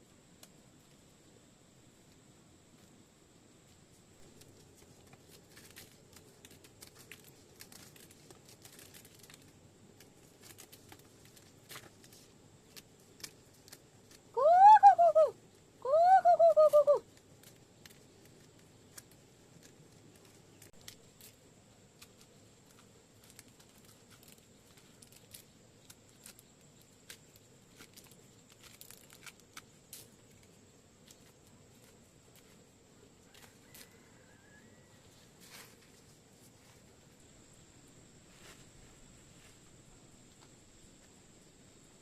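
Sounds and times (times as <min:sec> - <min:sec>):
wavering animal calls: 0:14.4 - 0:17.0.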